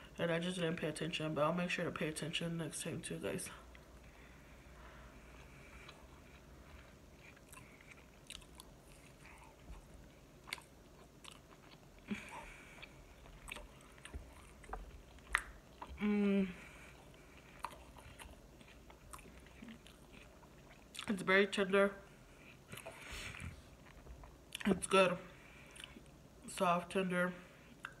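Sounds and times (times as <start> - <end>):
chewing and biting food: 5.3 - 16.0, 16.6 - 21.1, 22.4 - 24.8
person humming mm: 16.0 - 16.6.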